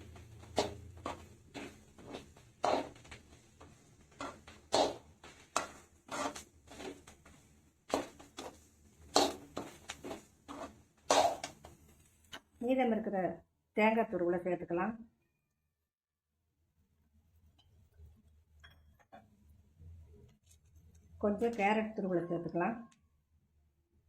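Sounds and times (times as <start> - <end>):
spoon scraping a cooking pan: 0.4 - 3.2, 4.1 - 7.2, 7.9 - 12.0.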